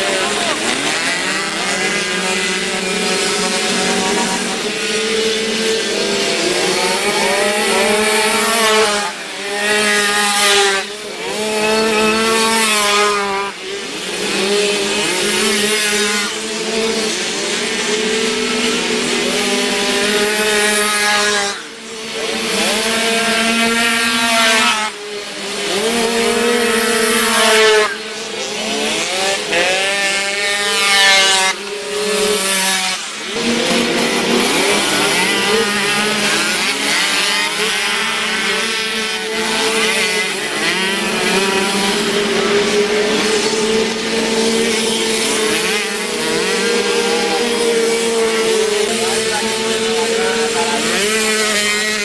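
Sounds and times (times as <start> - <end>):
moped engines revving: 0.0 - 52.0.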